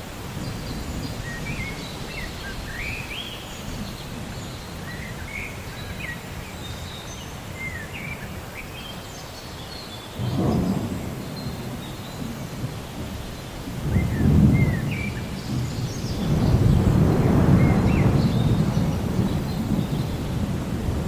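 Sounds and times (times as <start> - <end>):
steady rain: 0.0 - 21.0
birds chirping: 0.4 - 20.9
low rumbling thunder: 10.2 - 21.0.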